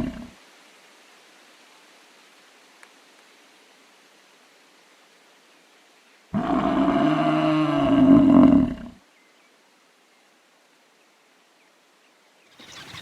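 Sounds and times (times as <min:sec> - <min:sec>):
bison bellowing: 0:06.4 - 0:09.0.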